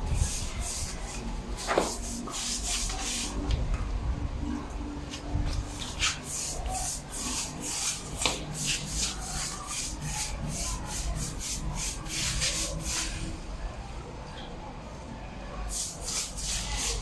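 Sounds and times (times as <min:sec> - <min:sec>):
hand rubbing stone floor: 0:00.0 - 0:03.6, 0:05.1 - 0:13.4, 0:15.7 - 0:17.0.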